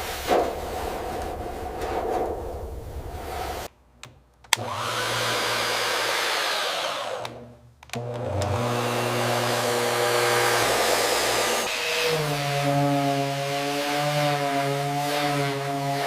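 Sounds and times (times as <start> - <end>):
click: 4.0 - 4.7, 7.2 - 8.6.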